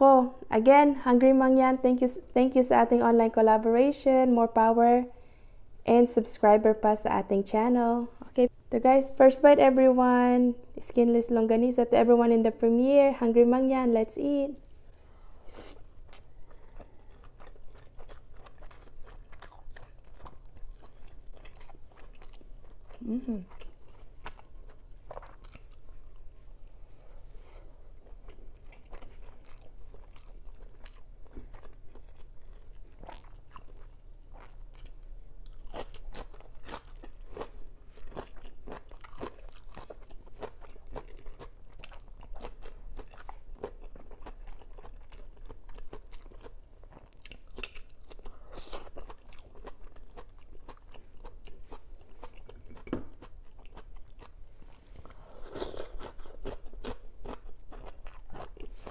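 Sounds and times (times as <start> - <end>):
person chewing: 15.5 - 58.9.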